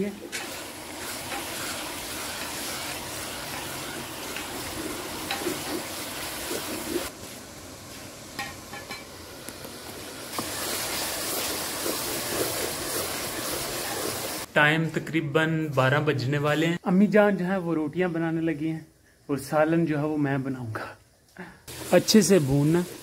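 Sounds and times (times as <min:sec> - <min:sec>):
spatula scraping wok: 0:00.0 - 0:07.4
masala sizzling in oil: 0:00.0 - 0:14.5, 0:21.7 - 0:23.0.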